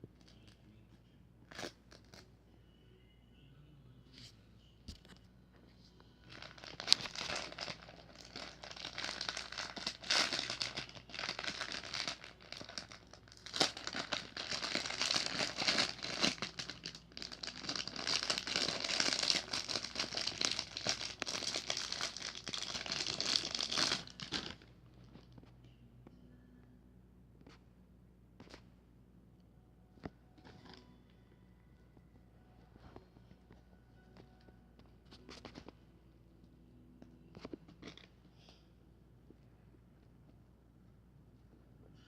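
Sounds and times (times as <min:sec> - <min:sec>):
wrapping crinkled by hand: 0:06.3 - 0:25.3.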